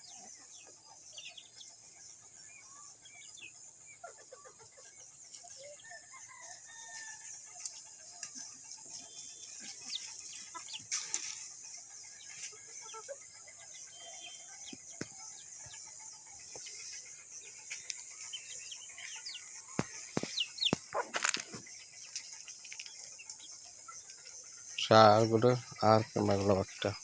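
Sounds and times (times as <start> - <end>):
chickens clucking and peeping: 0.0 - 27.0
steady high hiss: 15.5 - 27.0.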